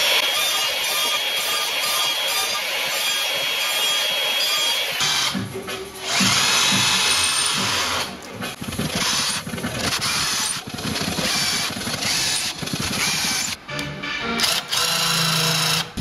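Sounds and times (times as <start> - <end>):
cordless drill boring into wood: 0.0 - 5.4, 8.8 - 13.6, 14.4 - 15.9.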